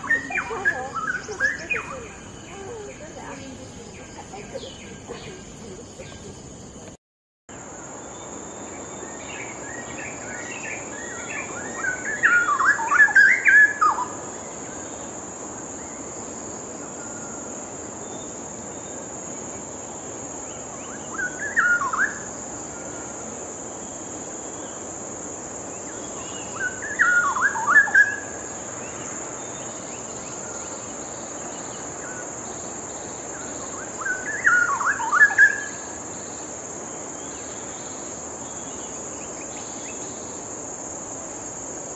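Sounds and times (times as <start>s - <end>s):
bulbul singing warbling phrases: 0.0s - 6.5s.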